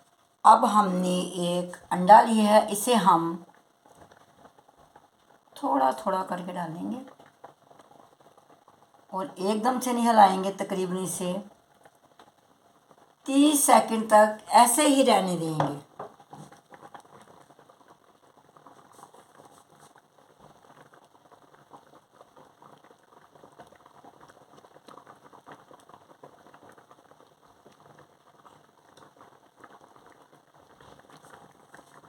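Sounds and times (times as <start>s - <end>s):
soup simmering with bubbling pops: 3.1s - 5.6s, 7.0s - 9.8s, 11.5s - 13.3s, 15.6s - 32.0s.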